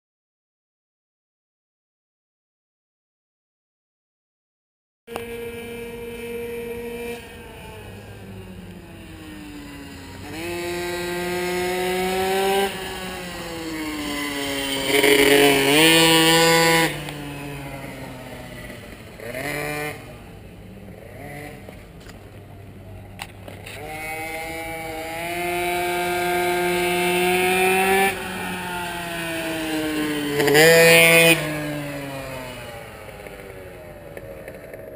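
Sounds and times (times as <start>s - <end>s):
racing engine revving: 5.1s - 20.3s, 23.6s - 33.8s.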